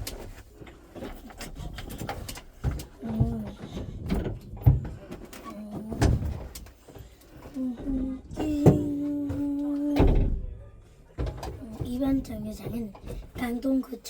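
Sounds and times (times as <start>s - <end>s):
child making mouth noises: 7.6s - 10.1s.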